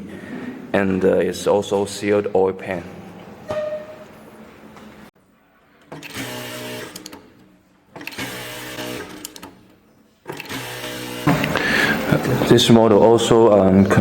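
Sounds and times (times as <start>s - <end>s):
sewing machine clicks: 5.8s - 9.6s, 10.3s - 11.6s
sewing machine stitching: 5.9s - 9.6s, 10.3s - 12.2s.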